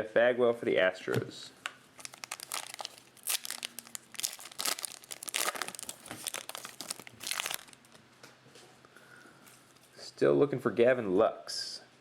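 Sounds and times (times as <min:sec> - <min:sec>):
plastic wrapper crinkling: 0:02.0 - 0:08.0.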